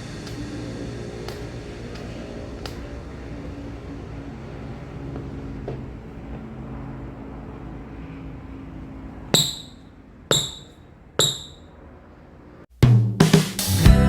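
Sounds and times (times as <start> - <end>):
basketball bouncing on hard floor: 9.4 - 11.6.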